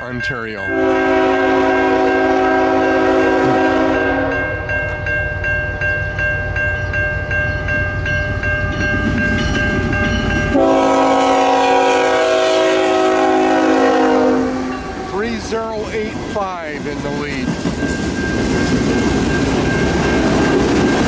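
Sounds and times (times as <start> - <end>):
rumble of passing train: 0.0 - 21.0
locomotive air horn chord: 0.7 - 4.7, 10.5 - 15.8.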